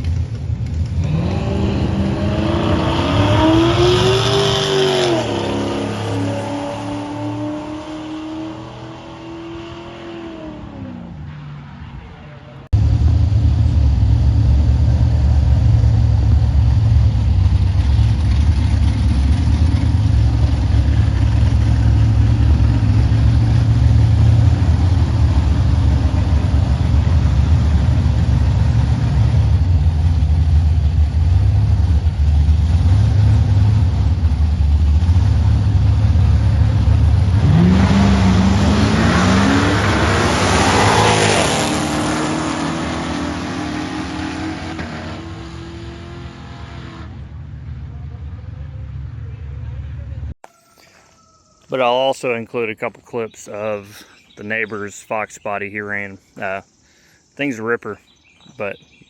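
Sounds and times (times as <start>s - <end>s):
engine revving: 0.0s - 11.2s, 12.7s - 47.6s.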